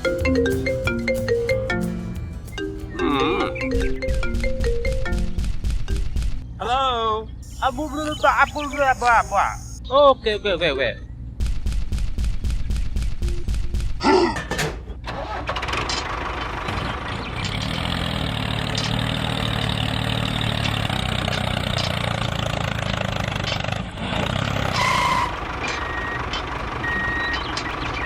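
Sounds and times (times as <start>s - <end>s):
vehicle engine running: 0.0s - 9.8s, 14.9s - 28.0s
reversing beeps: 7.5s - 9.8s, 24.8s - 28.0s.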